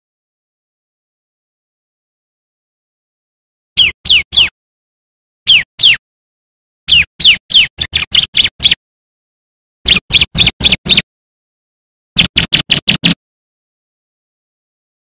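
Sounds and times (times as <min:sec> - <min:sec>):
bird whistled notes: 0:03.8 - 0:04.5, 0:05.5 - 0:06.0, 0:06.9 - 0:08.8, 0:09.9 - 0:11.0.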